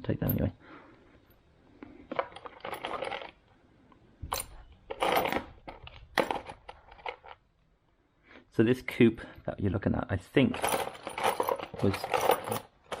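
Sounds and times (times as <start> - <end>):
metal drill bits clinking: 2.1 - 3.4, 4.3 - 7.4, 10.5 - 13.0.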